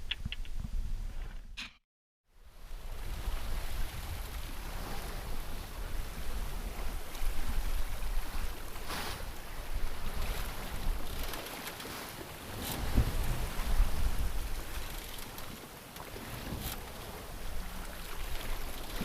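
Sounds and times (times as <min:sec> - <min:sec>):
wind buffeting microphone: 0:02.6 - 0:19.0
water splashing against hull: 0:02.7 - 0:19.0.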